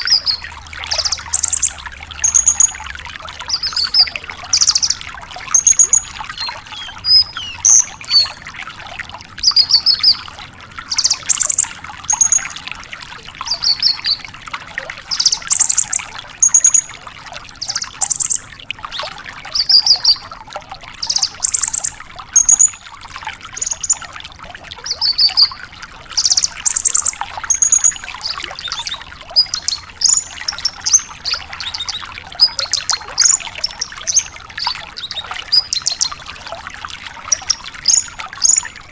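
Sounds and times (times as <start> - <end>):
lark singing trilled phrases: 0.0 - 2.8, 3.5 - 5.0, 5.6 - 8.4, 10.9 - 12.6, 17.6 - 18.5, 21.0 - 22.7, 26.2 - 36.1.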